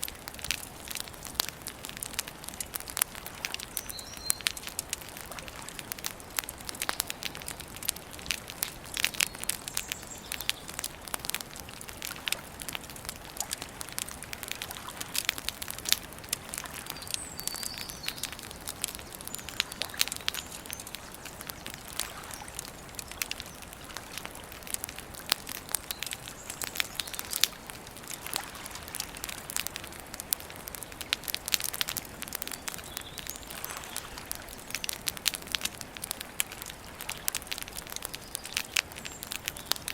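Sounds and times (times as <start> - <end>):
campfire crackling and popping: 0.0 - 39.9
soft steady hiss: 0.0 - 39.9
faint bird chirps: 3.7 - 4.6, 16.8 - 23.7.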